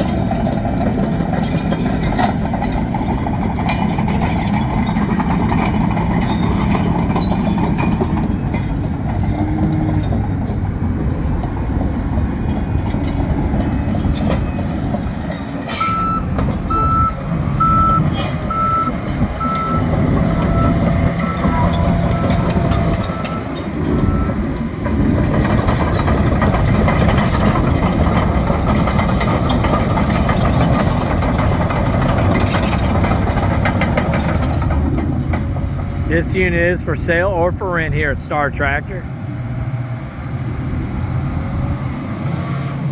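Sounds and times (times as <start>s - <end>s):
dozer diesel engine running: 0.0s - 42.9s
backup alarm beeping: 15.8s - 24.4s.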